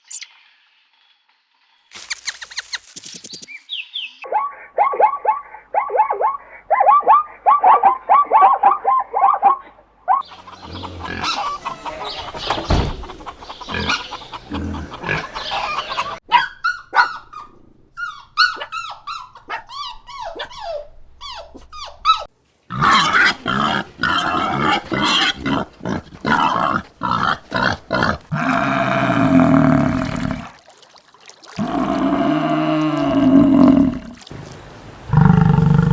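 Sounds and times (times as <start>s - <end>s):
short falling chirps: 1.9s - 4.1s
rapid repeated animal calls: 4.2s - 16.2s
animal squeals: 10.2s - 14.1s
animal grunting: 10.2s - 15.6s, 22.7s - 30.6s, 31.6s - 34.2s, 35.1s - 35.9s.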